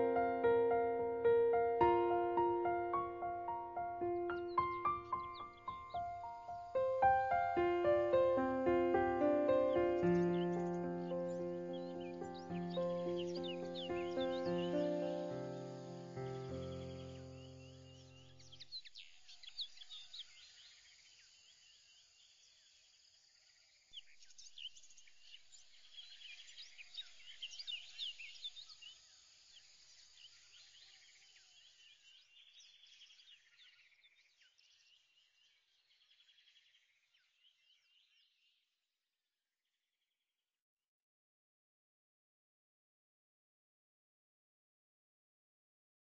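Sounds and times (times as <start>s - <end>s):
birds chirping and trilling: 0.0s - 20.8s.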